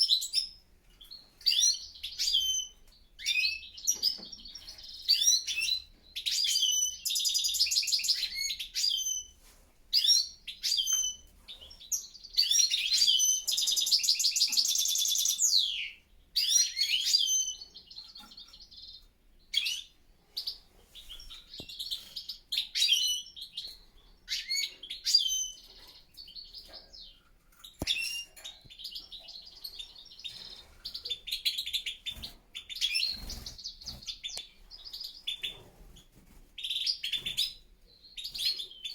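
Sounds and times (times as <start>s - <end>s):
finches twittering song: 10.0s - 36.0s.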